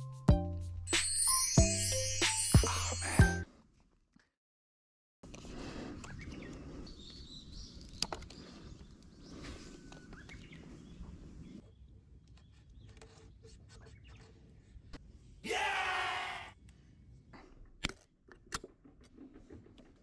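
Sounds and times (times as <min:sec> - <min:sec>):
small birds chirping: 0:06.0 - 0:14.4.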